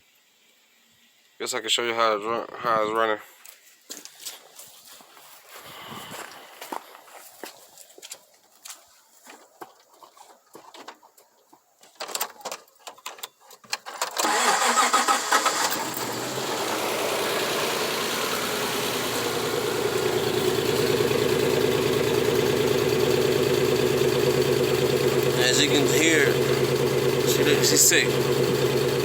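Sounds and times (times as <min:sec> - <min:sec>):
engine starting and idling rough: 0:13.9 - 0:29.0.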